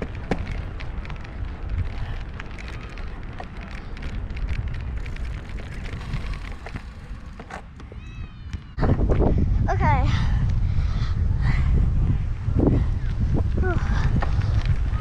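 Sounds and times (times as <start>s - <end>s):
short crackles and clicks: 0.0s - 7.8s
wind buffeting microphone: 0.0s - 15.0s.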